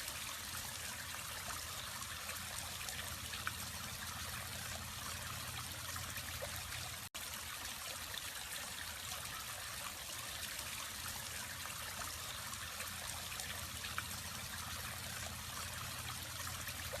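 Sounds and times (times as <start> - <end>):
waterfall trickling and splashing: 0.0 - 17.0
low steady hum: 0.2 - 7.1, 10.8 - 17.0.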